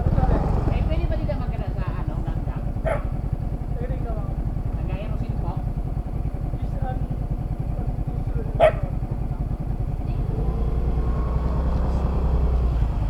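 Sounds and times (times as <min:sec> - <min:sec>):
scooter engine rumbling: 0:00.0 - 0:13.0
dog bark: 0:02.8 - 0:03.2, 0:08.5 - 0:09.0.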